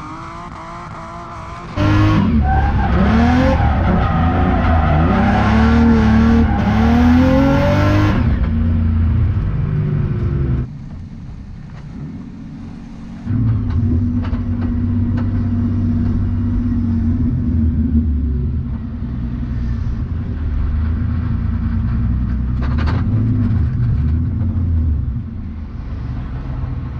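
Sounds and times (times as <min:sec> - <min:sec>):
car engine revving: 0:00.0 - 0:10.7.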